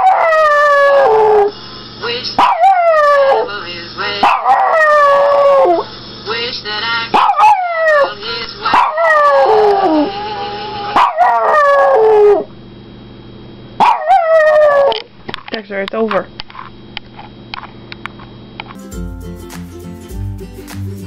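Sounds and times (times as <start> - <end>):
dog howling: 0.0 - 1.5, 2.4 - 3.5, 4.2 - 5.9, 7.2 - 12.5, 13.8 - 15.1
cartoon audio from laptop: 6.3 - 11.0.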